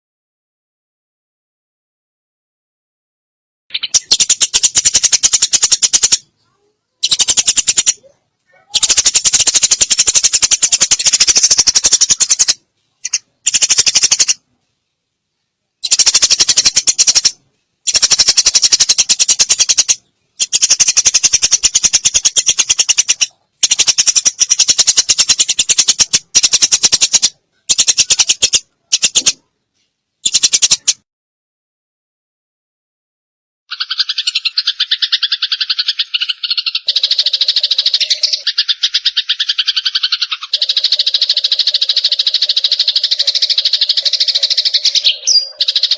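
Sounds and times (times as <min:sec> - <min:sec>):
sparrow harsh chattering calls: 0:03.7 - 0:14.4, 0:15.8 - 0:29.4, 0:30.2 - 0:31.0, 0:33.7 - 0:45.9.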